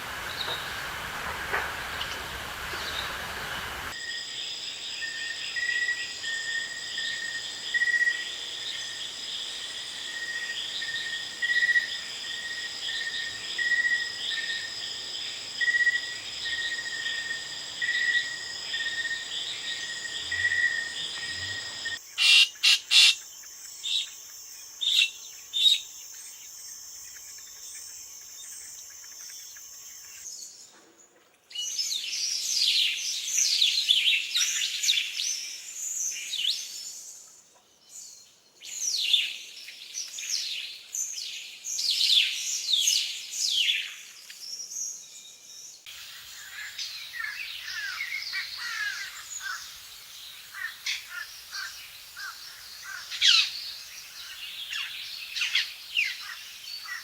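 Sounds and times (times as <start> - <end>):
birds chirping and calling: 0.0 - 3.9, 5.5 - 23.1, 50.5 - 57.0.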